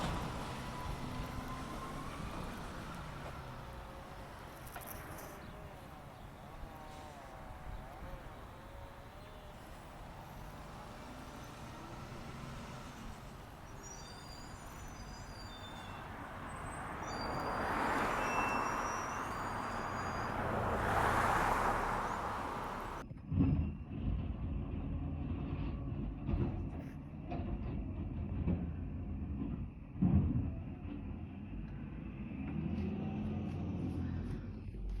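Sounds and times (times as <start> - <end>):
garbage truck running: 0.0 - 23.0
low engine rumble: 0.0 - 23.0.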